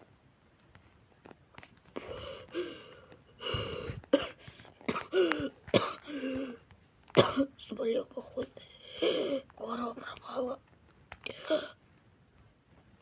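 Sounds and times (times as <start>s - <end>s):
person coughing: 3.4s - 6.6s, 7.2s - 7.5s.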